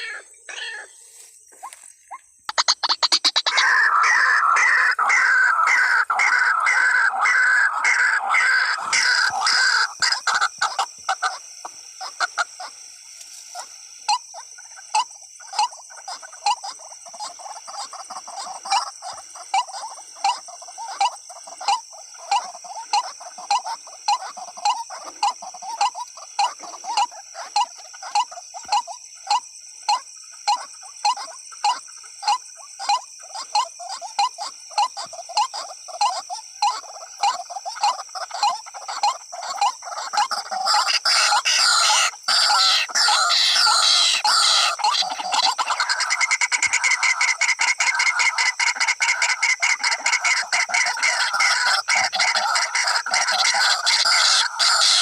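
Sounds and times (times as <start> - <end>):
waterhen calling: 0.0 - 12.9, 30.4 - 55.0.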